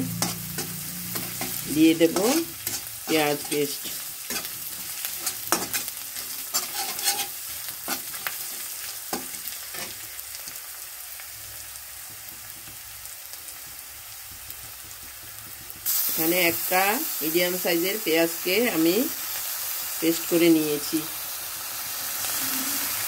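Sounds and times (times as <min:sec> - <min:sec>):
metal spatula scraping pan: 0:00.0 - 0:10.6
paste sizzling in hot oil: 0:00.0 - 0:23.0.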